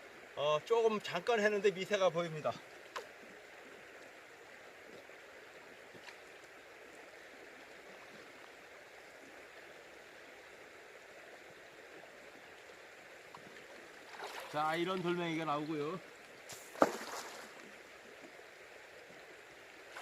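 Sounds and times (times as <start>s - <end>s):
flowing river water: 0.0s - 20.0s.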